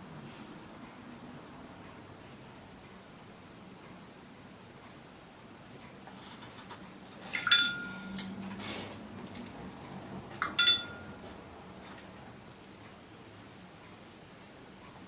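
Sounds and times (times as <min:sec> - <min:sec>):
paintbrush clinking on jar: 0:07.3 - 0:08.2, 0:10.4 - 0:11.1.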